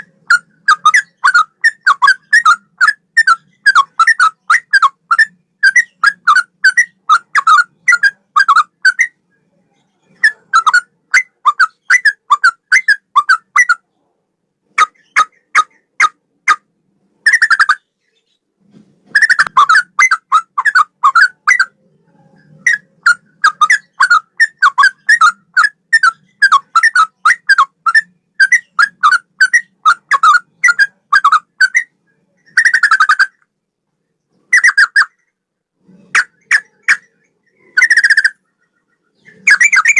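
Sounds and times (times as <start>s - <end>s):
bird singing whistled notes: 0.0s - 9.2s, 22.4s - 33.4s, 36.2s - 39.9s
bird chattering bursts: 39.2s - 39.9s.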